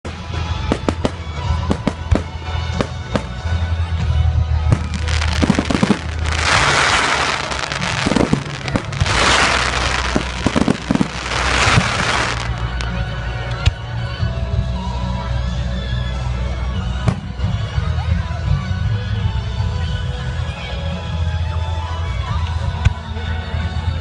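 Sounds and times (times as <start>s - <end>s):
music: 0.0s - 24.0s
fireworks bangs and crackles: 0.1s - 13.0s
hissing crackling firework bursts: 4.8s - 12.9s.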